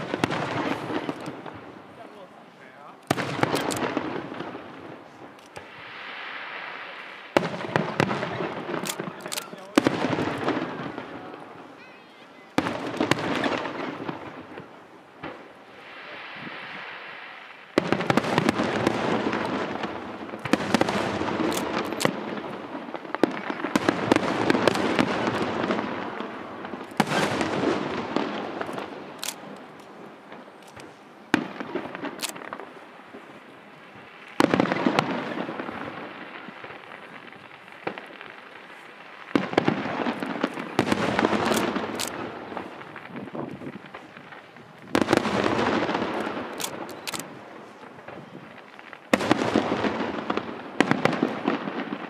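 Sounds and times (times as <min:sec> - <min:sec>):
fireworks crackling and rumbling: 0:00.0 - 0:52.0
firework shells bursting: 0:03.0 - 0:06.2, 0:17.7 - 0:32.8, 0:34.3 - 0:52.0.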